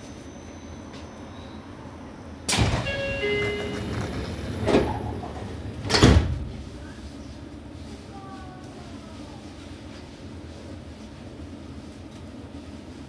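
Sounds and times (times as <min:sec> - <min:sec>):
train doors thumping shut: 0:02.5 - 0:06.8.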